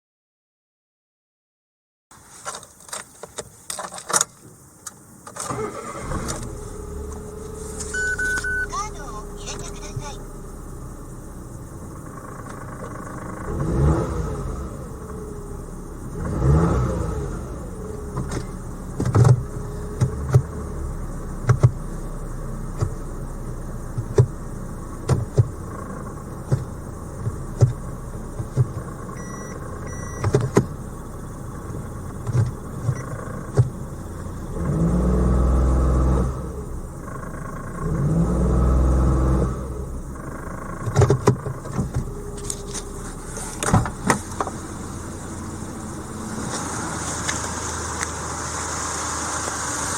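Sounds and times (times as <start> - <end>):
car engine idling and revving: 4.0 - 49.9
sharp clicks and knocks: 18.1 - 20.5, 21.4 - 21.8, 25.0 - 25.6, 26.4 - 27.8, 28.4 - 28.9, 32.2 - 33.8, 40.8 - 44.6.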